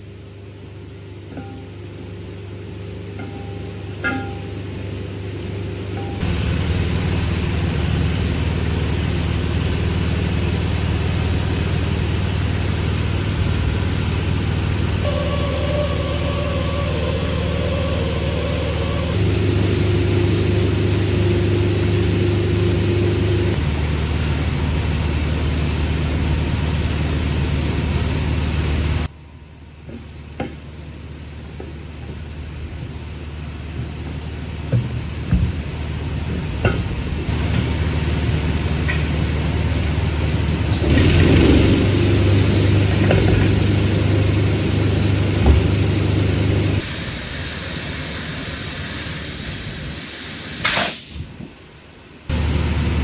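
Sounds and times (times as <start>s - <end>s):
diesel truck engine running: 0.0s - 49.9s, 51.8s - 53.0s
knocks: 33.8s - 35.7s.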